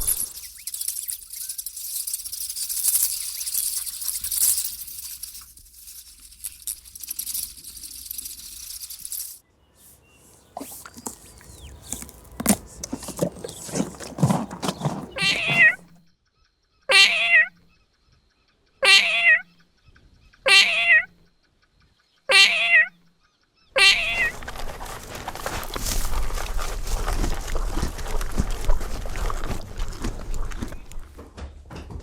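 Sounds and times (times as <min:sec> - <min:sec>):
steady rustling: 0:10.2 - 0:16.0
wavering animal calls: 0:10.3 - 0:15.9, 0:16.9 - 0:17.5, 0:18.8 - 0:19.5, 0:20.5 - 0:21.1, 0:22.3 - 0:22.9, 0:23.8 - 0:24.4.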